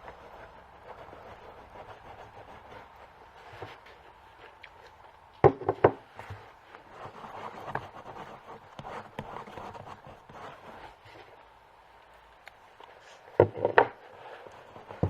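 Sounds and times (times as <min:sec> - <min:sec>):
rubbing balm on leather boot: 0:00.0 - 0:04.6
sharp knocks: 0:05.4 - 0:06.0.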